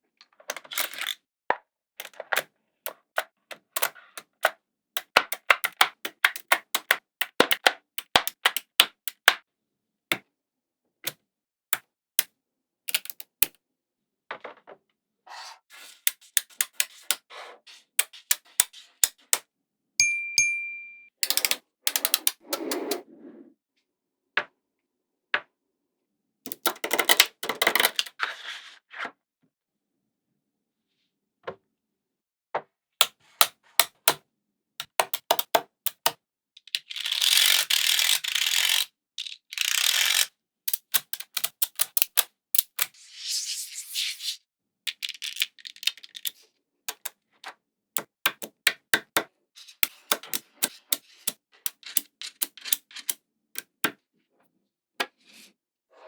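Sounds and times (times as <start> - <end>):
magnetic balls clicking: 21.2 - 22.9.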